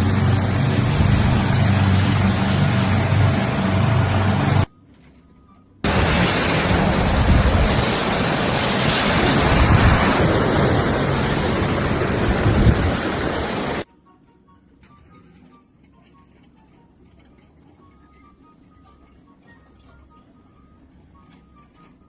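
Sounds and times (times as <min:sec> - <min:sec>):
loud steady rushing noise: 0:00.0 - 0:04.7, 0:05.8 - 0:13.9.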